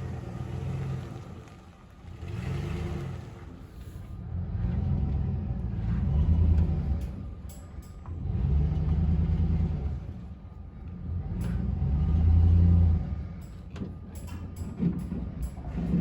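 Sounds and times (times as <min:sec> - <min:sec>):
tractor engine revving: 0:00.0 - 0:01.5.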